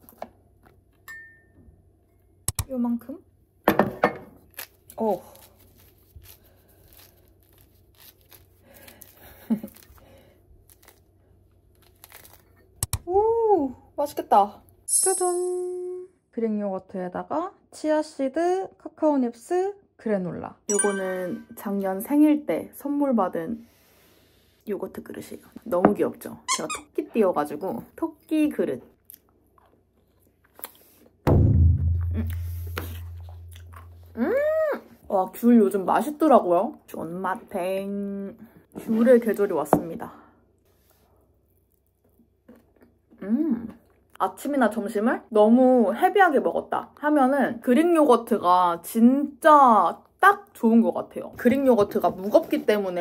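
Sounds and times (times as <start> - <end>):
deep bass boom: 31.3 - 34.2.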